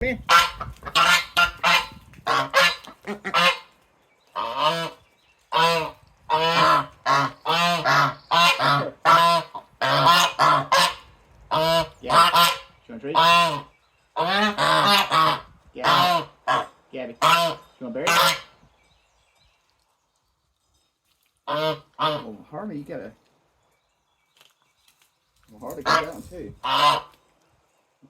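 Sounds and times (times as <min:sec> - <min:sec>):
geese honking: 0:00.3 - 0:03.7, 0:04.3 - 0:18.6, 0:21.5 - 0:22.3, 0:25.8 - 0:27.2.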